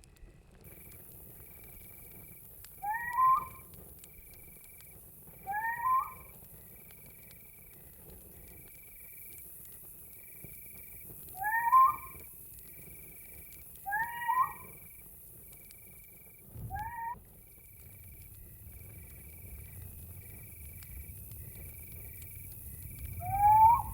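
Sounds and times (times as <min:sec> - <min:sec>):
crickets chirping: 0:00.6 - 0:23.9
animal meow-like call: 0:02.8 - 0:03.6, 0:05.5 - 0:06.3, 0:11.4 - 0:12.2, 0:13.9 - 0:14.7, 0:16.7 - 0:17.2.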